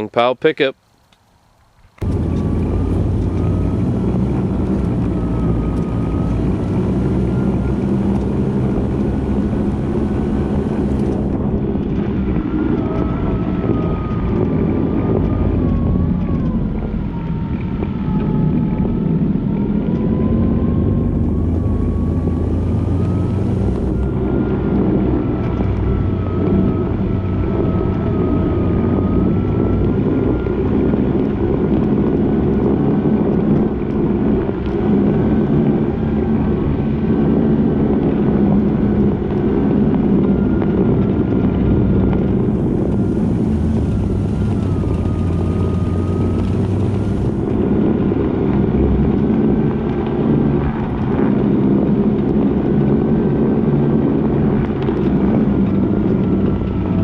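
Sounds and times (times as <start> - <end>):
small truck engine running: 1.6 - 57.0
wavering high whine: 2.0 - 51.0.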